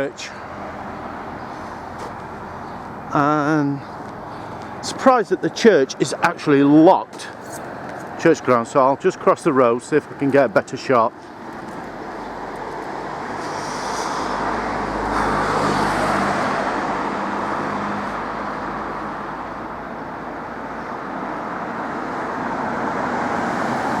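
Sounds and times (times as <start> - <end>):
steady traffic hum: 0.0 - 24.0
motor vehicle passing by: 11.4 - 20.1, 21.6 - 24.0.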